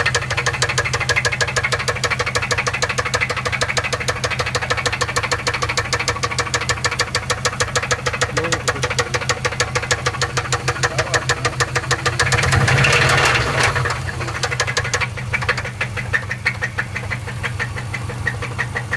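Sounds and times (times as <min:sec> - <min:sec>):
car engine running: 0:00.0 - 0:18.9
engine knocking: 0:00.0 - 0:18.9.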